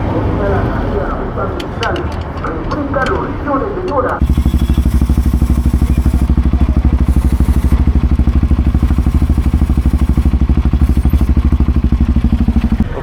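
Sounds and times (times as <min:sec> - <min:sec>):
motorcycle engine idling: 0:04.2 - 0:13.0.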